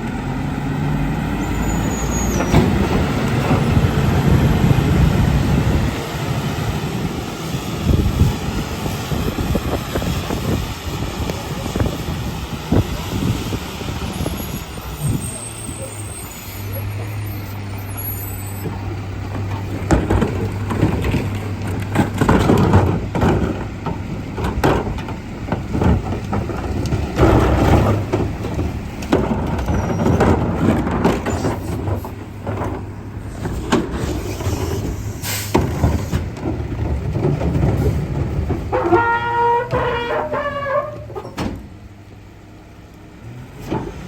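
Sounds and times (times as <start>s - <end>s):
garbage truck engine humming: 0.0s - 44.0s
trash and cans clattering: 18.7s - 41.4s.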